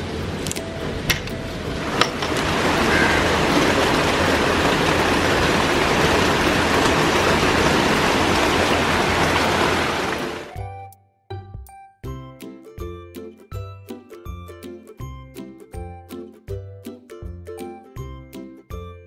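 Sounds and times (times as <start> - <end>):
heavy rain falling: 0.0 - 10.5.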